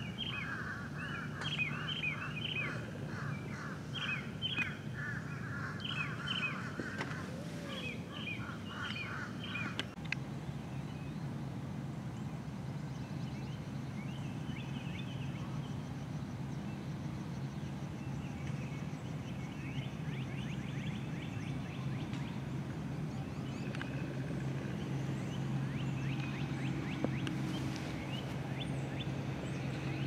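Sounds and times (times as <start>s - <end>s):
birds trilling: 0.0s - 10.0s, 17.5s - 30.0s
steady low hum: 0.0s - 30.0s.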